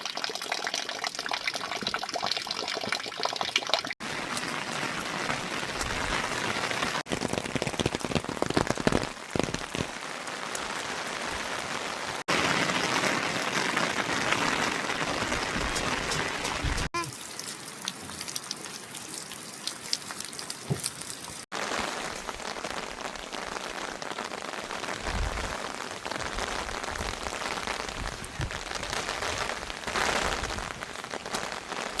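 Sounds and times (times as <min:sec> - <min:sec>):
heavy rain falling: 0:04.0 - 0:17.0, 0:21.5 - 0:32.0.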